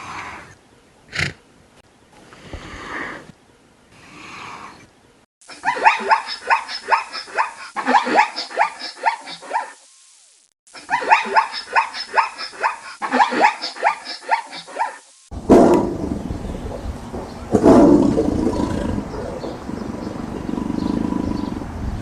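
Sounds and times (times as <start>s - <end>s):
animal barking yelps: 5.5s - 9.8s, 10.7s - 15.9s.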